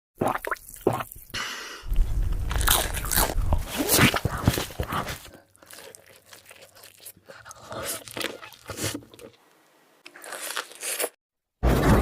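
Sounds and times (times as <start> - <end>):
crunchy food being chewed: 1.9 - 11.2.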